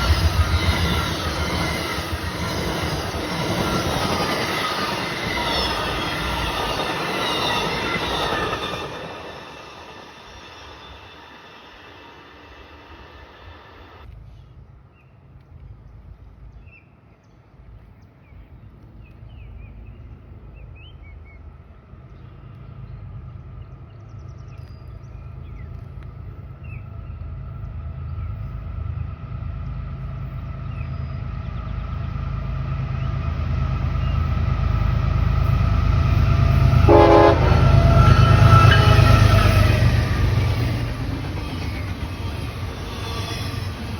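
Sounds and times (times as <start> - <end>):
train rumbling: 0.0 - 14.8, 17.4 - 43.9
birds chirping: 29.6 - 43.9
train horn blast: 36.6 - 40.3.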